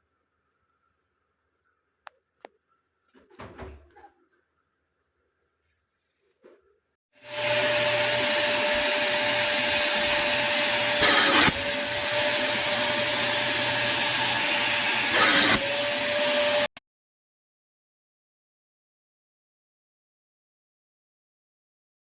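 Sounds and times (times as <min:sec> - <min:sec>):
vacuum cleaner running: 0:07.2 - 0:16.7.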